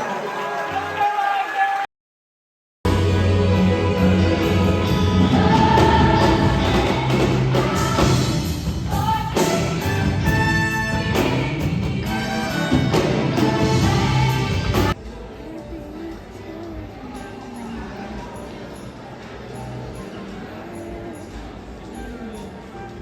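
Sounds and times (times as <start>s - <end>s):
band accompaniment: 2.9s - 15.0s
choir singing gospel: 2.9s - 15.0s.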